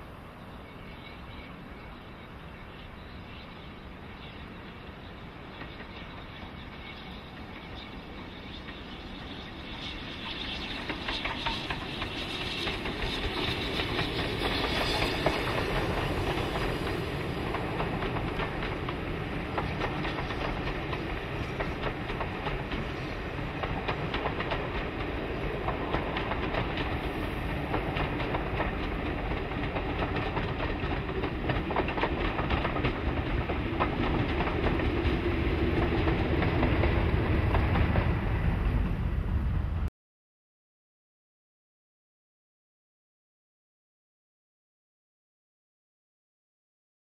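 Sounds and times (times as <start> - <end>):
train wheels clicking over rail joints: 9.7 - 38.9.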